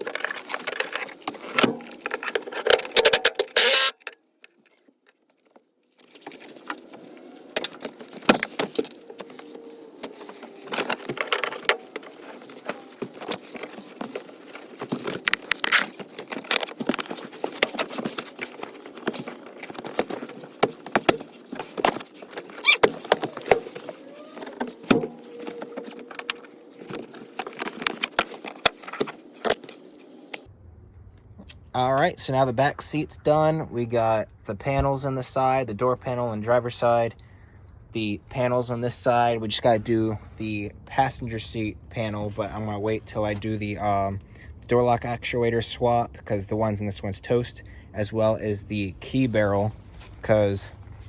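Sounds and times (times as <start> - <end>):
tools and plastic trim rattling: 0.0 - 29.8.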